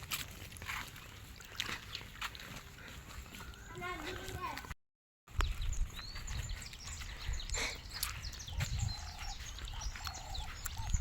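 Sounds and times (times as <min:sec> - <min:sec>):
birds chirping: 0:01.9 - 0:04.7, 0:05.3 - 0:11.0
repeated lower bird call: 0:06.8 - 0:11.0.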